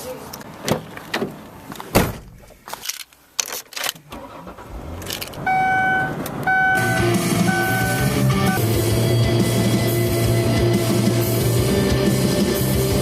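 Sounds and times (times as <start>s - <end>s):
car doors and keys clicking: 0.4s - 8.1s
car engine running: 4.6s - 13.0s
car warning chime beeping: 5.4s - 8.6s.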